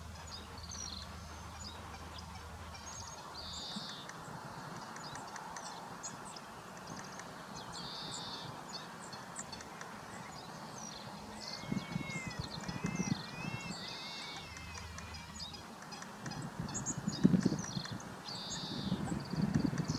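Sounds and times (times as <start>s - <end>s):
birds chirping: 0.0s - 19.9s
buzzy bird call: 11.0s - 15.7s.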